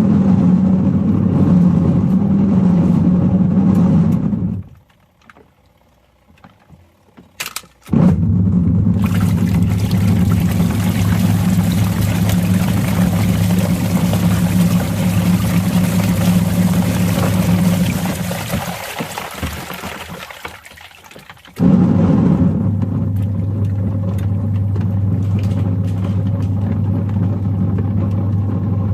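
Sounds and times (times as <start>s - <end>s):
washing machine motor humming: 0.0s - 28.9s.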